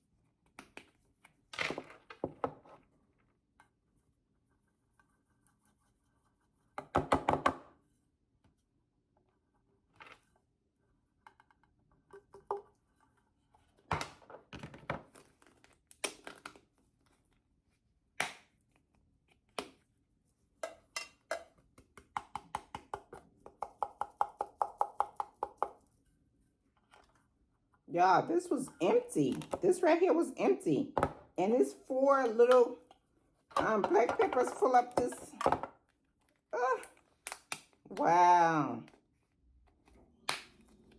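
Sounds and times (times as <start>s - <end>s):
containers tapping and clicking: 20.6s - 25.9s, 28.6s - 36.0s.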